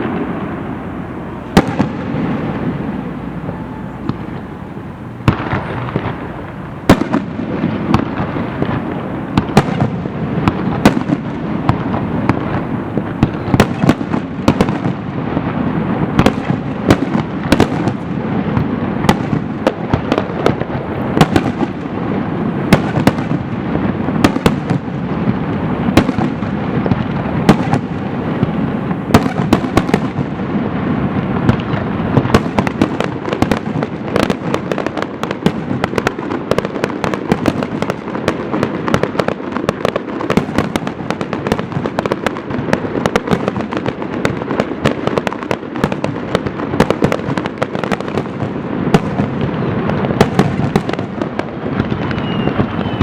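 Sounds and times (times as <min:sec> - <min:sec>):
fireworks bangs and cracks: 0:00.0 - 0:53.0.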